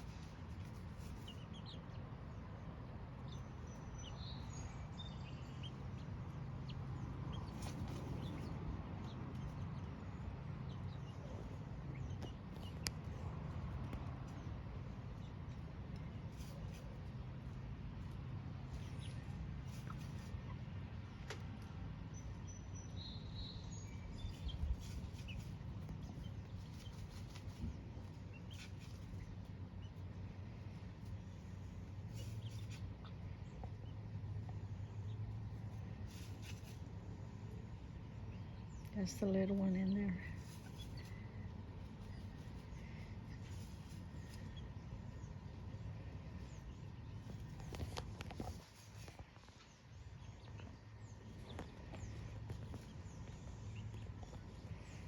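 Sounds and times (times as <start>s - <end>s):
rustling in dirt: 0.0s - 1.6s, 7.3s - 8.8s, 23.0s - 33.6s, 34.4s - 55.0s
chickens chirping and clucking: 0.0s - 55.0s
low steady rumble: 0.0s - 55.0s.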